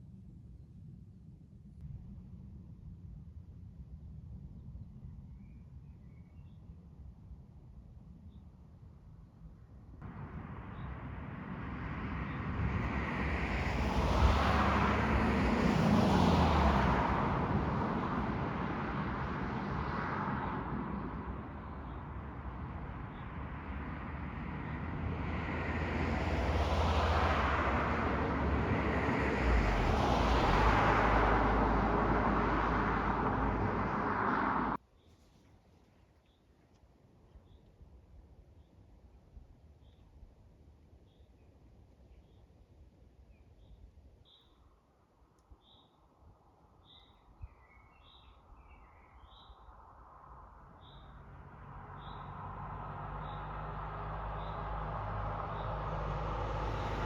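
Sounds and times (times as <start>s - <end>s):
vehicles passing on road: 10.0s - 34.8s, 45.2s - 57.0s.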